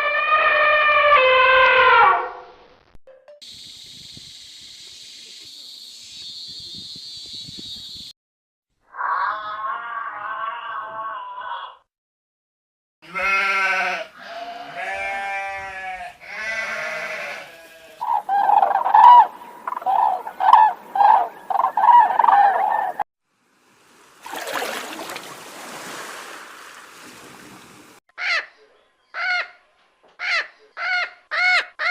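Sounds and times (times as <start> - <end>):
rustling hiss: 3.5 - 7.9
animal calls: 16.4 - 23.0.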